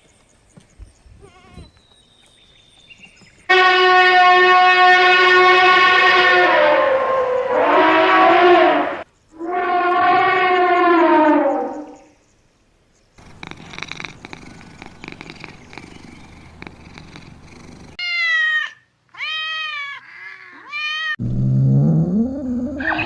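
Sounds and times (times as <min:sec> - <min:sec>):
low-pitched animal call: 0:05.4 - 0:12.1, 0:20.0 - 0:23.0
cat purring: 0:13.2 - 0:18.0
cat meowing: 0:13.2 - 0:21.2.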